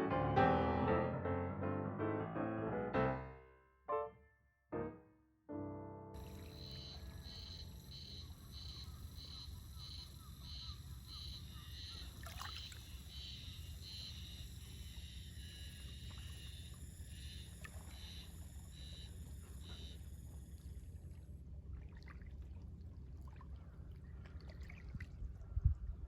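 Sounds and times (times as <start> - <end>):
high chirping call: 6.2 - 14.4.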